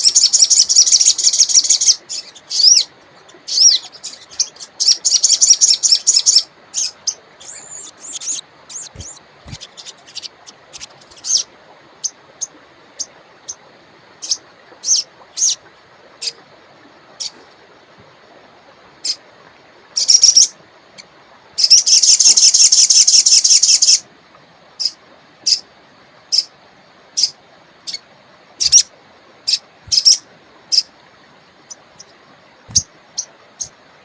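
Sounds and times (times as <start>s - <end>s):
songbird chattering and chirping: 0.0s - 11.5s, 29.5s - 30.9s.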